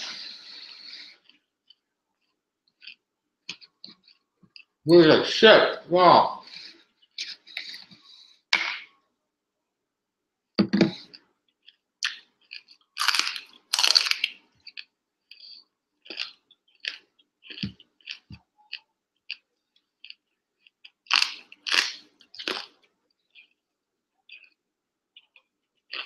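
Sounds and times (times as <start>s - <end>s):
broccoli crunching: 0.1s - 4.7s, 11.0s - 23.6s.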